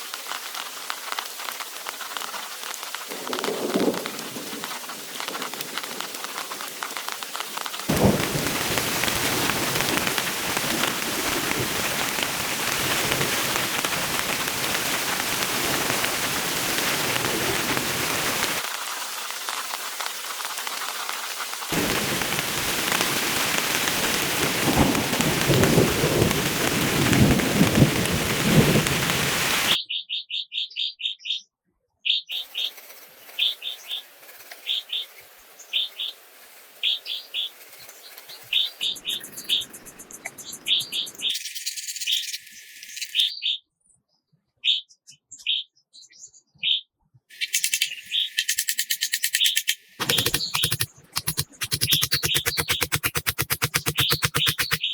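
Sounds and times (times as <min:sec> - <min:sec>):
heavy rain pouring: 0:00.2 - 0:20.0, 0:21.7 - 0:29.8.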